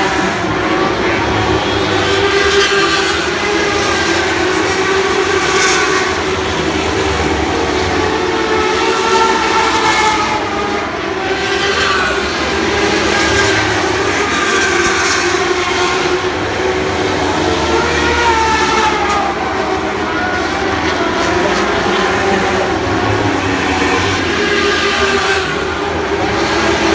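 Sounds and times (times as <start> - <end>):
racing car engines at high revs: 0.0 - 26.9.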